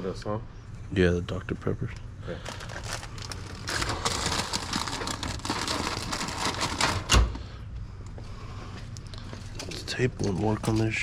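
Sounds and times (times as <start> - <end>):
plastic packaging crinkling: 2.3 - 7.1.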